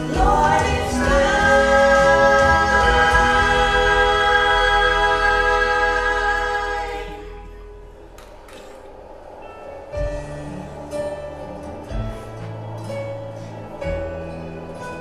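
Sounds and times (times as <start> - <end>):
vocal group singing held chord: 0.0 - 8.0.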